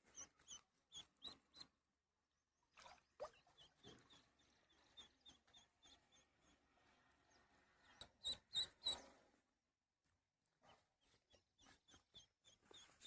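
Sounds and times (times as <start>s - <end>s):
ducklings peeping: 8.0s - 9.0s.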